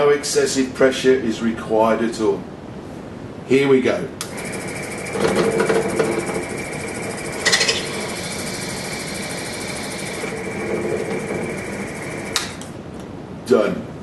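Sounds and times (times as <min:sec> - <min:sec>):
grinding point high whine: 0:04.3 - 0:12.7
grinding hiss: 0:04.4 - 0:12.4
grinding scrape: 0:10.4 - 0:11.7.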